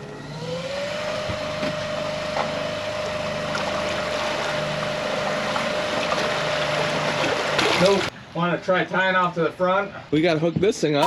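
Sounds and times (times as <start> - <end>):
electric outboard motor whining: 0.0 - 8.1
water wash: 1.1 - 8.1.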